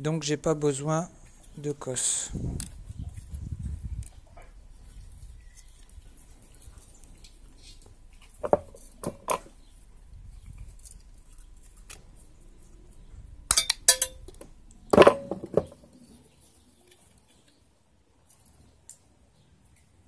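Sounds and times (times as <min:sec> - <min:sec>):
metal tools clinking on workbench: 0:13.5 - 0:14.4.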